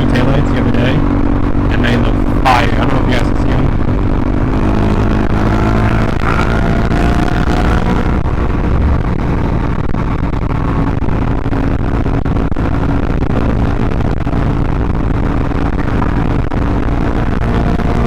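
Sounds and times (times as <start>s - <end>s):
motorcycle engine cruising: 0.0s - 18.0s
wind rush: 4.5s - 11.2s.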